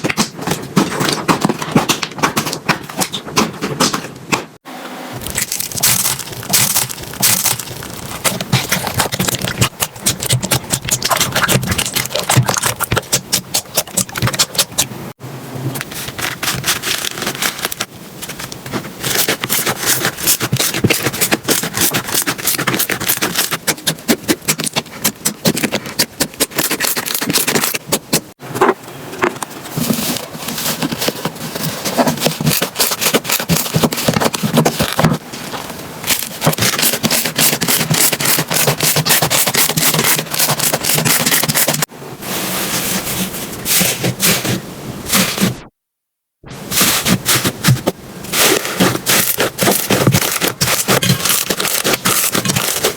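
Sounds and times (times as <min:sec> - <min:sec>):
slime crackling and popping: 0:05.2 - 0:14.9, 0:48.4 - 0:52.9.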